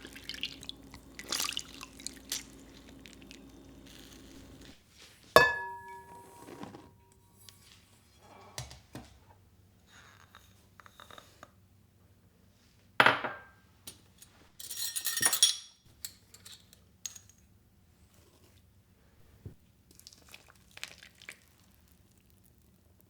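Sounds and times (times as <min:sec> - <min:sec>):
dishes clinking together: 0:05.4 - 0:06.9.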